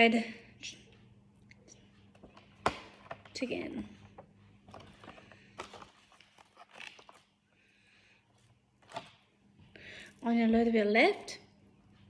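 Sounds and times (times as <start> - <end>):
food handling clicks and rustles: 2.0 - 7.4, 8.3 - 9.3.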